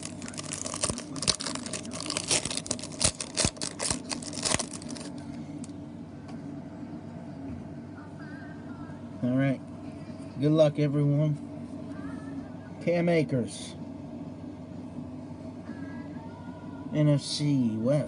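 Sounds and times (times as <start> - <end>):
wrapper tearing and crinkling: 0.0 - 5.2
low steady hum: 0.0 - 18.0.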